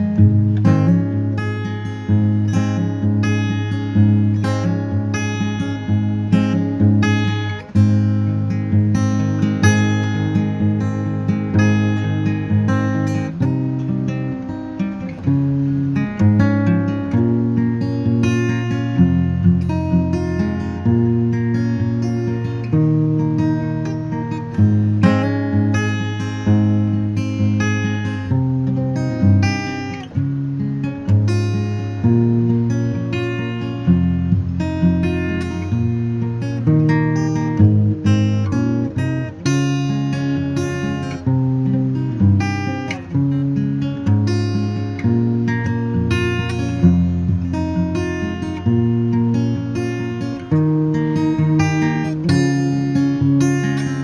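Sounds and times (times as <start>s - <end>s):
acoustic guitar music: 0.0s - 54.0s.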